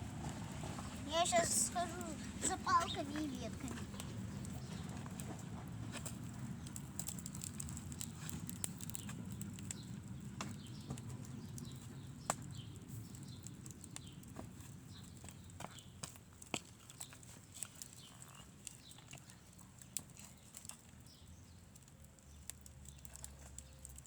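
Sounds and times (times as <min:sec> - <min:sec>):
footsteps outdoors: 0:00.0 - 0:07.0.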